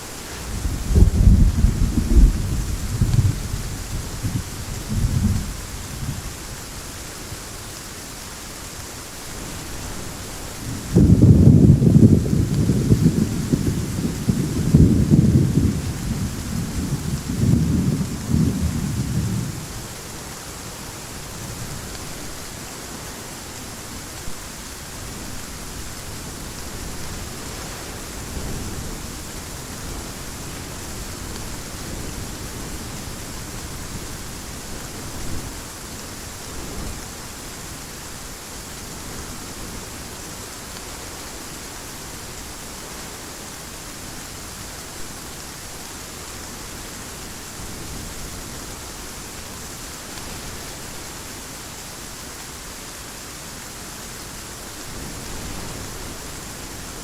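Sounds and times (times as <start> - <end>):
heavy rain falling: 0.0 - 57.0
rolling thunder: 0.4 - 6.4, 10.6 - 19.9.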